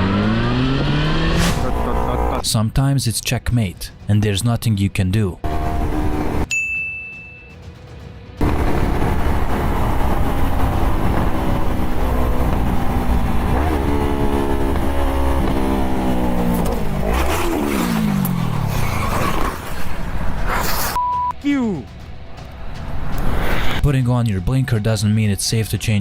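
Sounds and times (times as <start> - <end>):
motorcycle engine accelerating: 0.0 - 2.4, 5.4 - 6.5, 8.4 - 20.5
loud noisy burst: 1.2 - 2.4.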